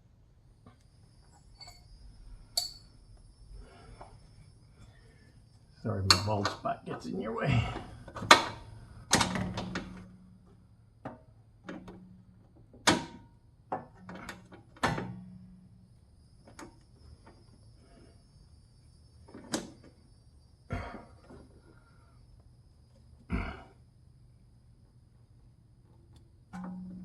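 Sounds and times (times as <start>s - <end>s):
metal tools knocking and clanking: 6.0s - 6.6s.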